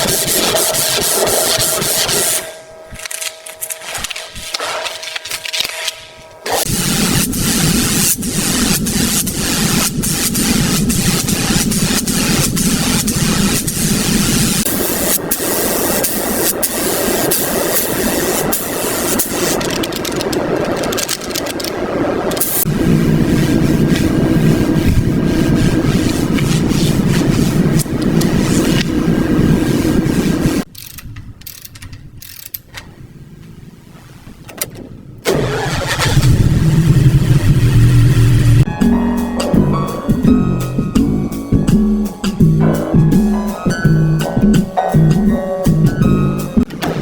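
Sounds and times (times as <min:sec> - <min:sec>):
car engine running: 0:35.3 - 0:38.7.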